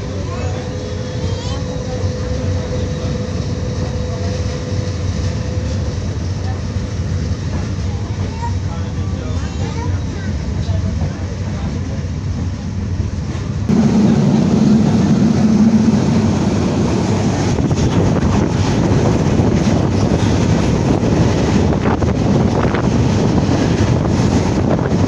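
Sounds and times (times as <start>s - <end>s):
train wheels rumbling on rails: 0.0s - 25.0s
wind on microphone: 13.7s - 25.0s.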